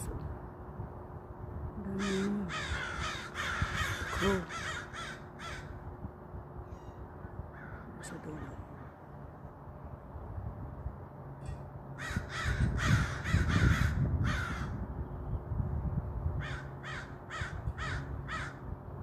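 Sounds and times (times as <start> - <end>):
steady low rumble: 0.0 - 19.0
crows cawing: 2.0 - 5.9, 6.7 - 9.0, 11.4 - 14.8, 16.4 - 18.6.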